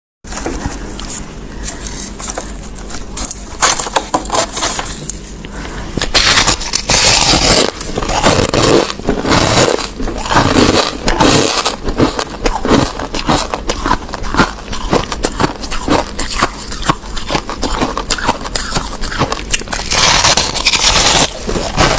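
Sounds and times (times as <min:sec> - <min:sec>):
crushed ice being chewed: 0:06.0 - 0:21.9.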